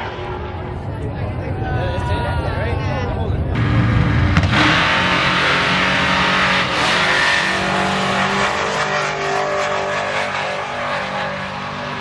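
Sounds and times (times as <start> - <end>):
race truck engine running hard: 3.4 - 12.0.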